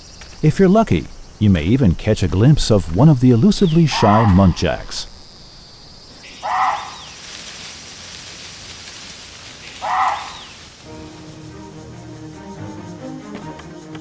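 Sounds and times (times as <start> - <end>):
high insect buzz: 3.0 - 14.0
deer barking: 3.2 - 5.2, 6.2 - 7.2, 9.6 - 10.6.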